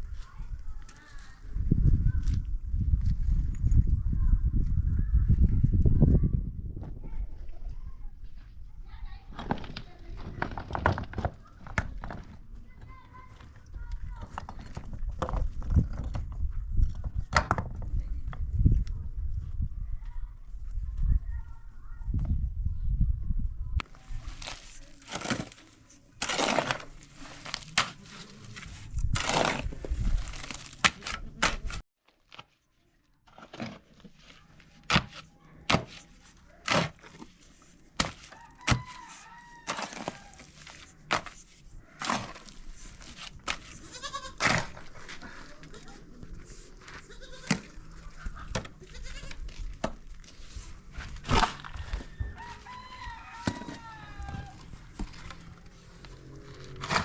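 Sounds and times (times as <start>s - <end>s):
sharp cracks and knocks: 38.0s - 39.0s.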